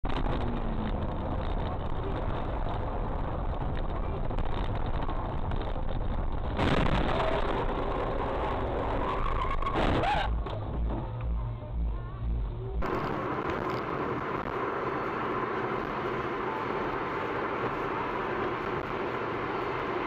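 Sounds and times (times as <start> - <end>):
road and engine noise: 0.0 - 20.0
brief squeal: 9.0 - 10.4.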